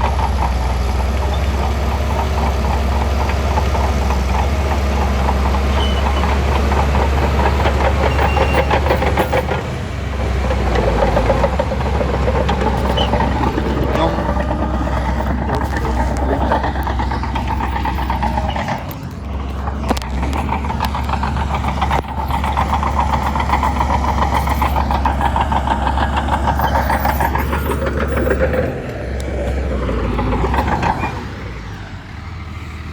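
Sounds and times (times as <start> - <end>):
bulldozer diesel engine rattling: 0.0 - 32.9.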